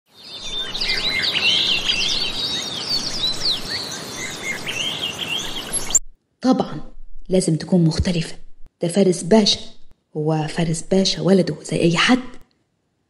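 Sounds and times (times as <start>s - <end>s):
birds chirping: 0.1s - 6.1s.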